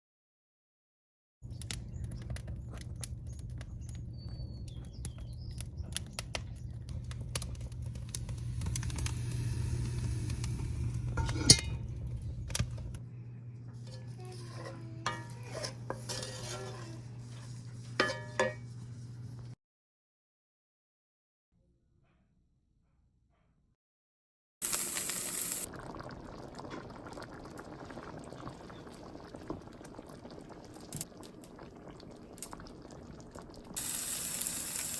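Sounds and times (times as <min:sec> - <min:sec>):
steady low hum: 0:01.5 - 0:19.6
metal utensils clinking on pots: 0:11.1 - 0:12.0, 0:13.8 - 0:18.8.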